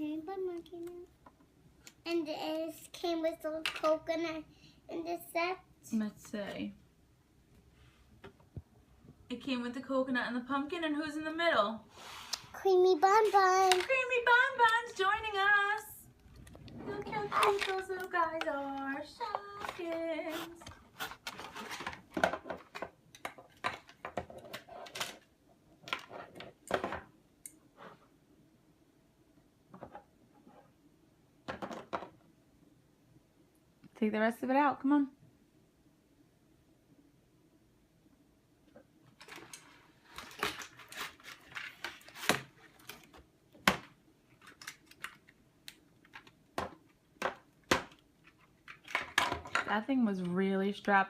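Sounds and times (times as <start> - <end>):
packaging crinkling and rustling: 39.2 - 43.3.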